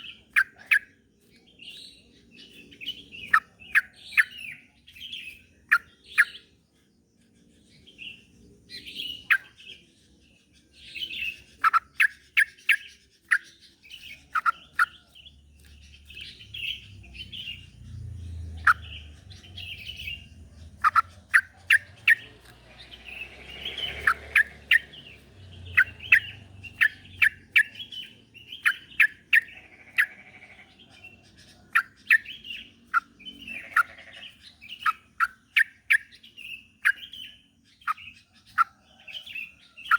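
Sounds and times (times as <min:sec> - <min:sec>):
bulbul chirping and warbling: 0:11.2 - 0:30.3.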